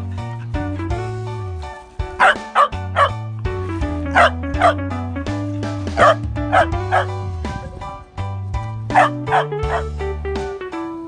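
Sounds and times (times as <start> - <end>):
music with bass line: 0.0 - 11.0
dog barking: 2.2 - 3.2, 4.2 - 4.8, 6.0 - 7.2, 8.9 - 9.9.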